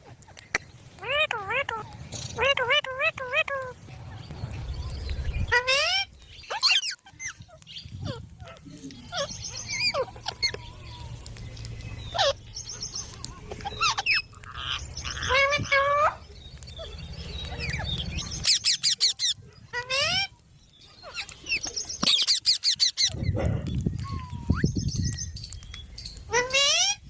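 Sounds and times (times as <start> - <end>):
parakeets squawking and chirping: 0.0 - 27.0.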